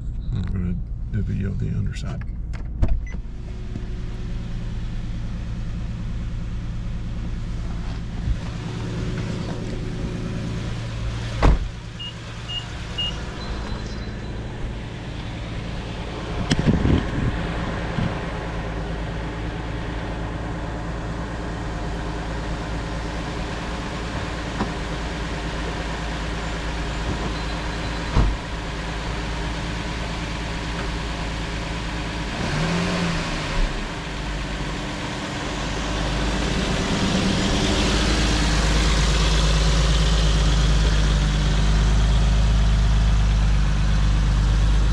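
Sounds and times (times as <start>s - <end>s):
car engine idling: 0.0s - 44.9s
sharp engine knocks: 11.2s - 11.9s, 28.1s - 28.6s.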